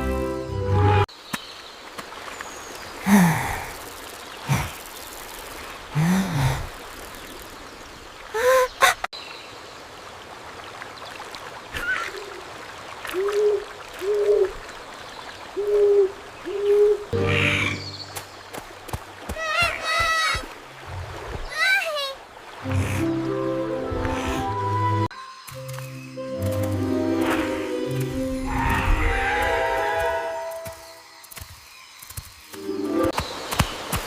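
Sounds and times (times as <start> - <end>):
music: 0.0 - 1.1, 17.2 - 17.9, 22.6 - 31.0, 32.6 - 33.2.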